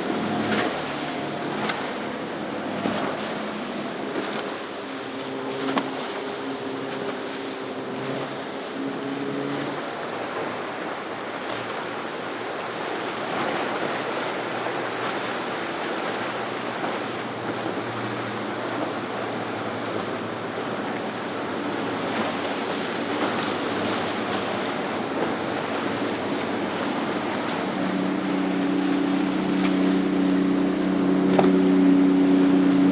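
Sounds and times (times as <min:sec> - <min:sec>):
surf rushing: 0:00.0 - 0:04.2, 0:19.3 - 0:32.9
boat engines humming: 0:00.0 - 0:32.9.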